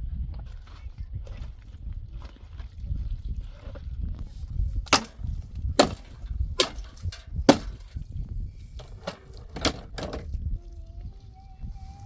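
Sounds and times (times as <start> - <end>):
steady low rumble: 0.0 - 12.0
wood chopping strokes: 4.9 - 8.0.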